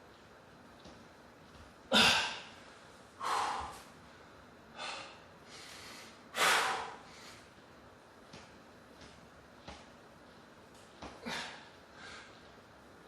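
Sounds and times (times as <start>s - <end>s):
man huffing hard: 1.9s - 2.5s.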